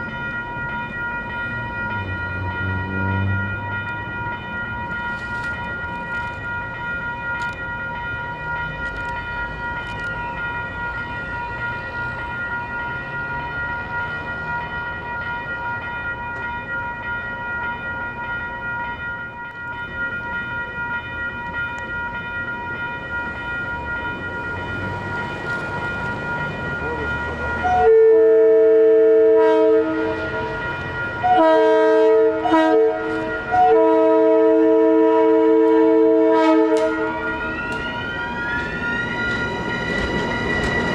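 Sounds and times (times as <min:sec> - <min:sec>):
locomotive rumbling and whining: 0:00.0 - 0:40.9
train air horn blasts: 0:27.6 - 0:30.5, 0:31.2 - 0:37.4.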